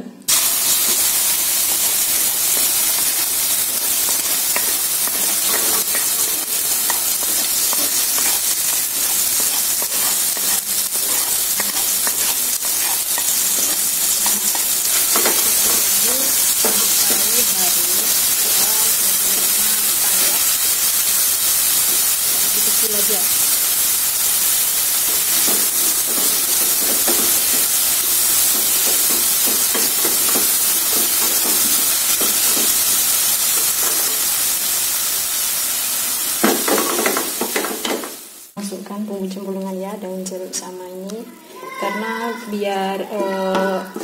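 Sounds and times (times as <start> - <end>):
paste sizzling in hot oil: 0.3 - 38.6
spatula clicking and scraping: 0.9 - 17.5.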